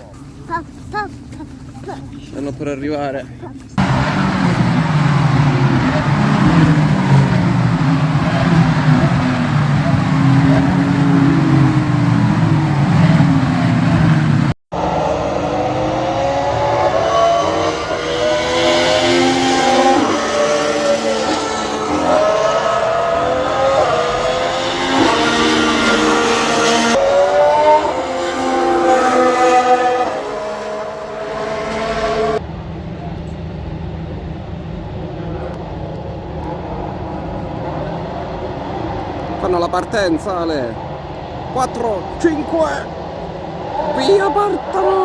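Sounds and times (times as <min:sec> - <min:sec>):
racing car engines: 0:00.0 - 0:45.0
racing cars accelerating past: 0:03.8 - 0:32.4.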